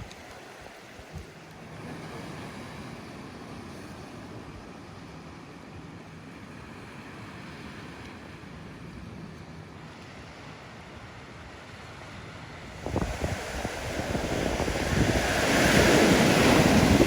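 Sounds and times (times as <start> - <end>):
wind: 0.0 - 17.0
ocean surf: 9.9 - 17.0.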